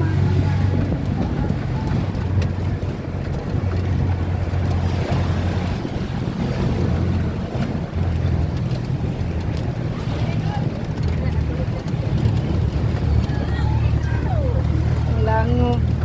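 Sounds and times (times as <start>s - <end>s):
road noise: 0.0s - 16.0s
vehicle engine drone: 0.0s - 16.0s.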